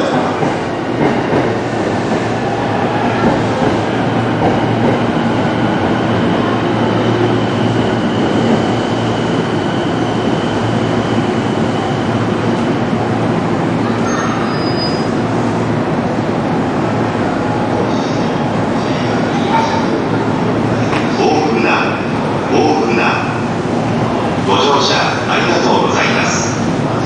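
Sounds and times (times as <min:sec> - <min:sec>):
electric train rumbling on rails: 0:00.0 - 0:27.0.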